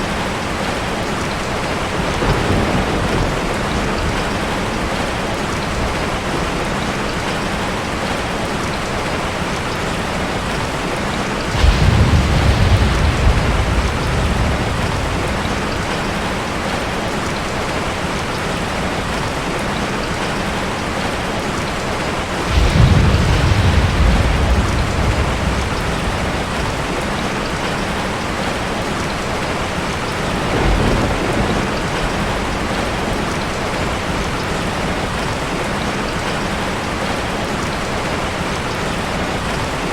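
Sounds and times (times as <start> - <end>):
heavy rain falling: 0.0 - 39.9
thunder rumbling: 1.5 - 6.9, 10.1 - 19.2, 22.2 - 37.2.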